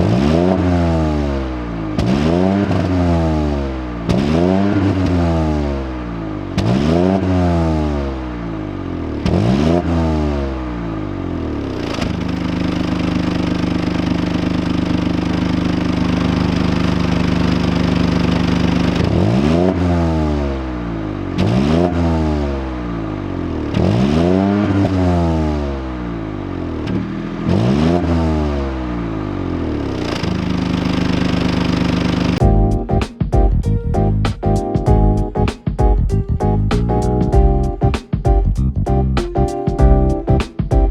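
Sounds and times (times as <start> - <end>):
car engine revving: 0.0 - 32.4.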